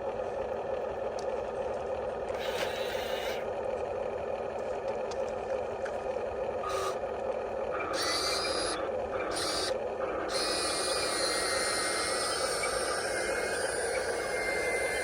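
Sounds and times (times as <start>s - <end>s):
steady underlying hum: 0.0s - 15.0s
electric motors whirring: 2.4s - 3.5s, 6.6s - 7.0s, 7.7s - 15.0s.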